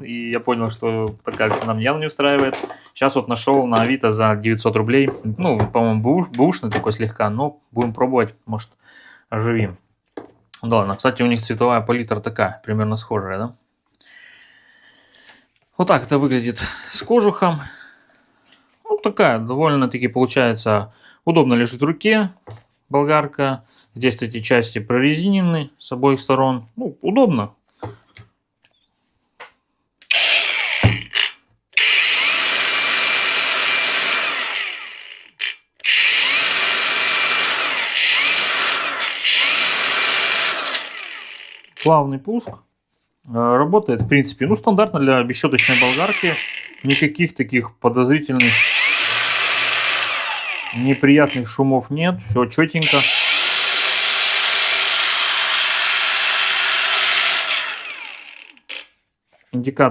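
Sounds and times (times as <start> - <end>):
angle grinder whining: 30.0 - 41.9, 45.6 - 47.1, 48.4 - 51.5, 52.8 - 58.9
grinder winding down: 30.0 - 41.9, 45.6 - 47.1, 48.4 - 51.5, 52.8 - 58.9.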